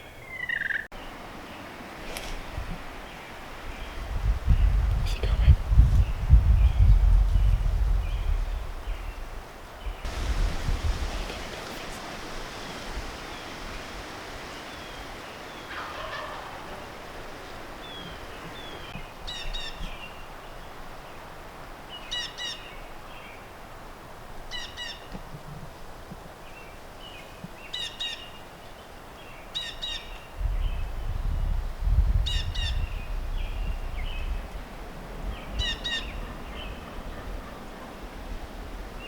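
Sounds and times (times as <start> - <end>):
wind rumble on microphone: 2.2 - 15.3, 30.3 - 39.0
turkey gobbling: 15.6 - 17.0
small birds chirping: 17.6 - 20.2.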